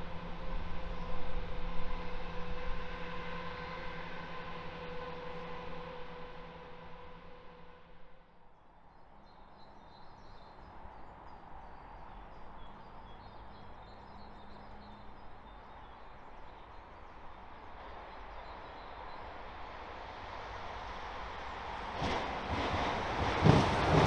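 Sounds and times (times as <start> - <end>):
train rumbling: 0.0 - 8.3, 9.2 - 24.0.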